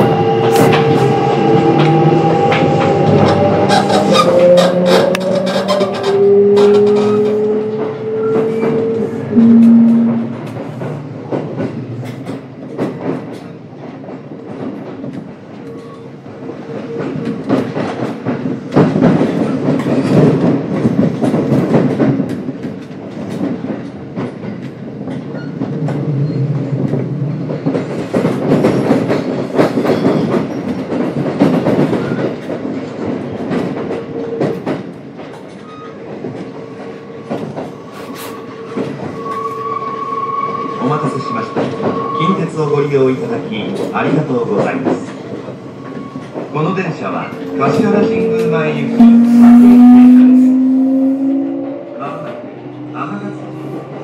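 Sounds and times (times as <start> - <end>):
trains rumbling past: 0.0 - 54.0
wheels clattering over rail joints: 1.7 - 9.1.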